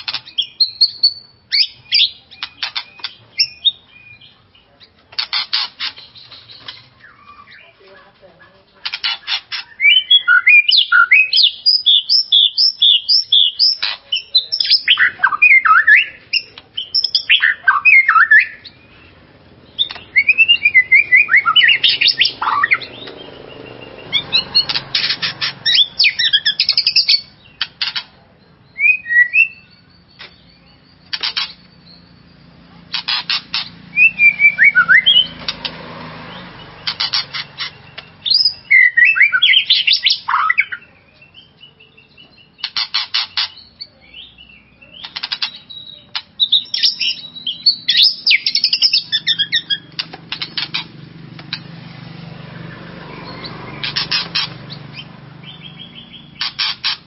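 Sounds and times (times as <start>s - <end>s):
harsh rasping bird calls: 0.0s - 57.0s
bird singing whistled phrases: 0.3s - 4.4s, 9.6s - 19.1s, 19.8s - 24.6s, 28.6s - 32.7s, 33.9s - 35.4s, 38.0s - 42.7s, 43.6s - 49.9s.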